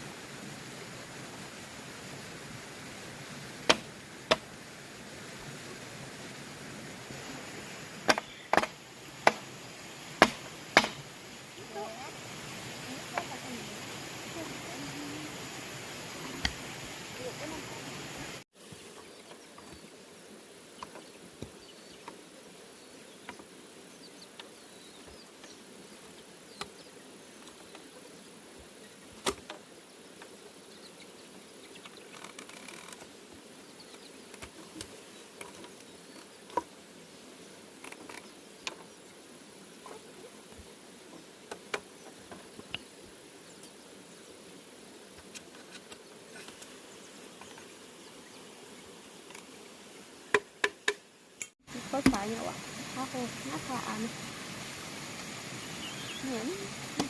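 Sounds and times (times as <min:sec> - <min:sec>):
insects buzzing and chirring: 0:00.0 - 0:57.0
sharp knocks: 0:08.1 - 0:09.4, 0:10.2 - 0:11.0.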